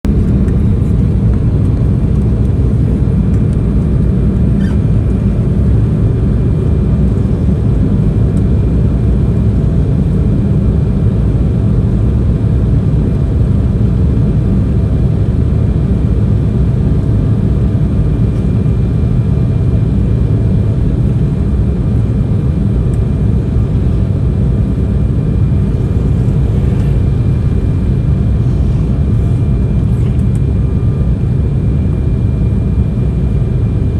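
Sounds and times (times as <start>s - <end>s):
airliner cabin rumble: 0.0s - 33.9s
faint whining tones: 22.9s - 31.2s.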